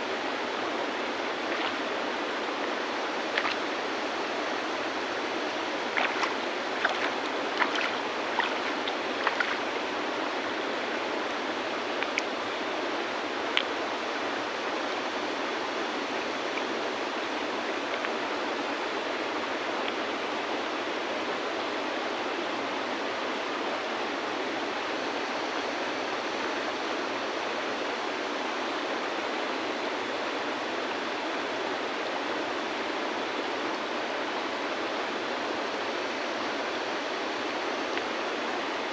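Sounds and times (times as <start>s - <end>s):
river water flowing: 0.0s - 21.8s.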